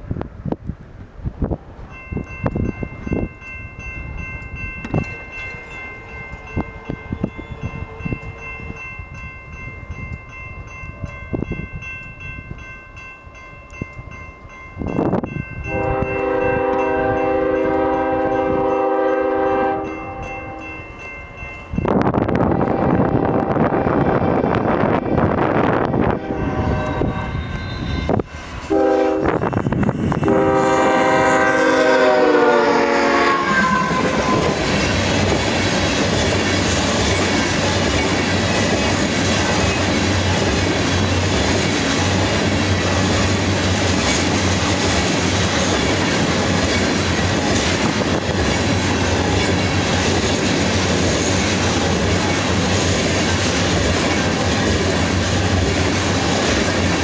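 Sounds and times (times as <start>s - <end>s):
locomotive air horn: 15.7s - 20.6s, 26.0s - 28.0s, 28.6s - 29.6s, 30.2s - 34.6s.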